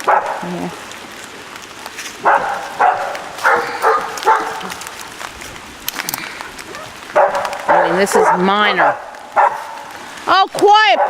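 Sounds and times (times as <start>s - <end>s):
dogs barking: 0.0s - 0.5s, 2.2s - 5.0s, 6.7s - 10.0s, 10.8s - 11.0s.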